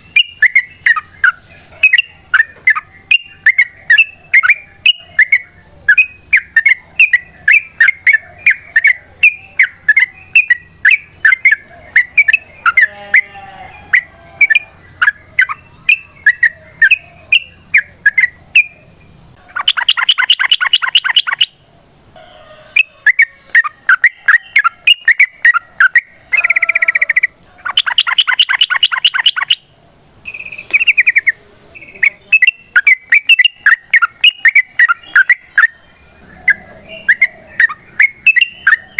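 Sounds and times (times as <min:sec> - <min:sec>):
bird chattering song: 0:00.0 - 0:21.6, 0:22.8 - 0:38.9.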